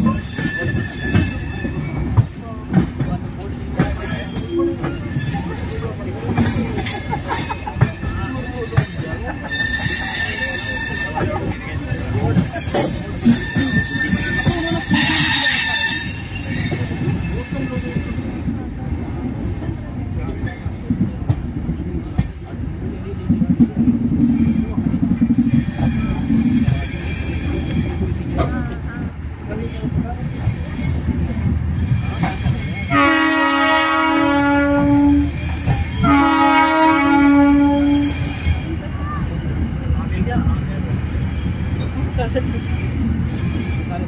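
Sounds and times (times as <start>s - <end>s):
train wheels squealing: 0.0s - 2.8s, 3.9s - 18.4s, 24.2s - 28.8s, 29.5s - 32.9s, 37.8s - 44.0s
wheels rumbling on rails: 0.0s - 44.0s
locomotive air horn blasts: 32.9s - 35.3s, 36.0s - 38.3s.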